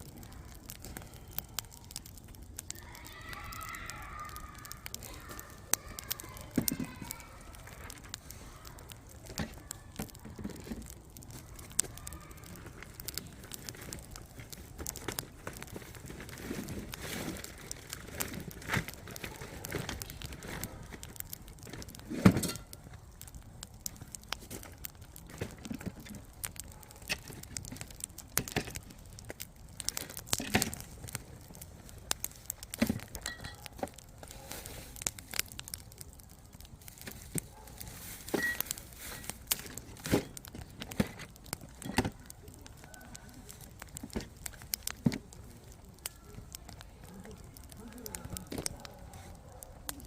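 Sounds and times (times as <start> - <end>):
campfire crackling and popping: 0.0 - 50.0
soft fire hiss: 27.2 - 49.5.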